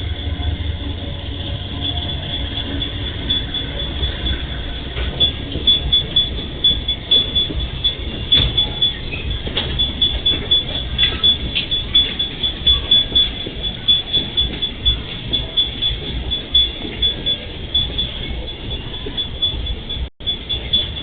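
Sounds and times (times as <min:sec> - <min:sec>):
freight train rolling past: 0:00.0 - 0:16.4.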